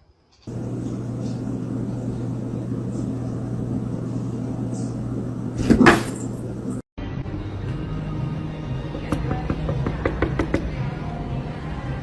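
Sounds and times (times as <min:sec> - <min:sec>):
low hum: 0:00.5 - 0:06.8.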